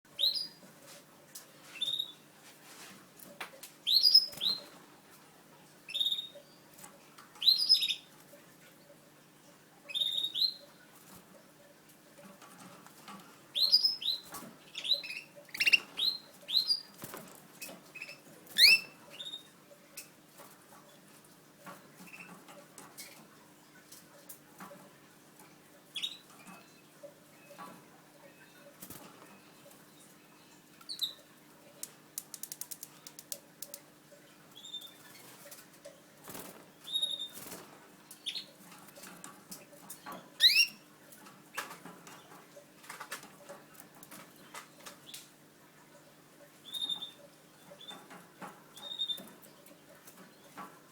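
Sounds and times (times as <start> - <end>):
canaries chirping: 0.2 - 0.6, 1.8 - 2.2, 3.9 - 4.8, 5.9 - 6.6, 7.4 - 8.1, 9.9 - 10.8, 13.5 - 20.1, 21.9 - 22.4, 25.9 - 30.1, 30.9 - 31.2, 34.5 - 40.9, 46.6 - 50.6.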